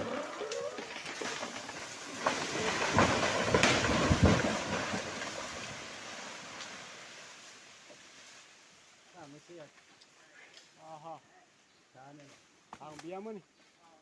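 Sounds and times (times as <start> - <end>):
tree snapping and cracking: 0.0 - 7.1
heavy crash of falling tree: 0.0 - 7.5
branches rustling: 0.0 - 11.0.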